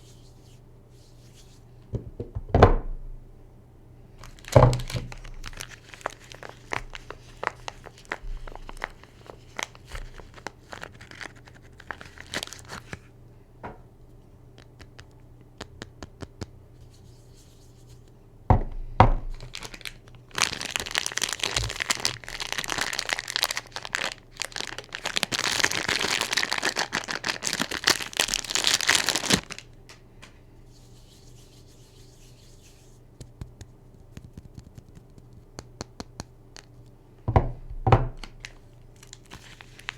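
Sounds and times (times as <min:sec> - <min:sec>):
wrapper crinkling and tearing: 0:04.2 - 0:13.0, 0:19.3 - 0:29.8, 0:38.2 - 0:39.9.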